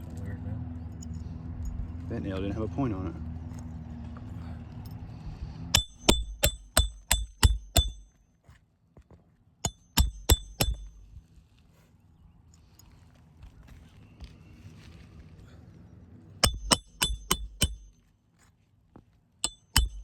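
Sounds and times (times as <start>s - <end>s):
hammer ringing on metal: 5.8s - 8.2s, 9.6s - 11.0s, 16.4s - 18.0s, 19.4s - 20.0s.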